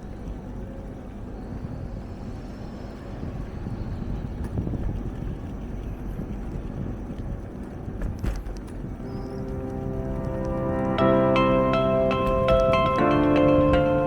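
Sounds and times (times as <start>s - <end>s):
bicycle road rumble: 0.0s - 14.0s
wind buffeting microphone: 0.0s - 14.0s
faint music: 8.9s - 14.0s.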